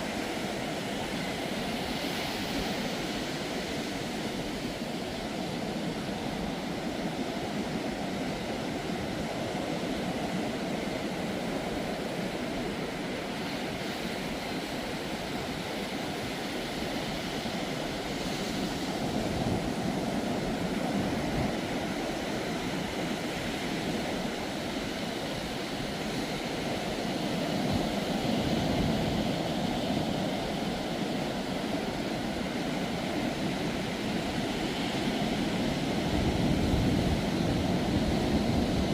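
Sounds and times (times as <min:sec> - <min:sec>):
ocean waves breaking on beach: 0:00.0 - 0:38.9.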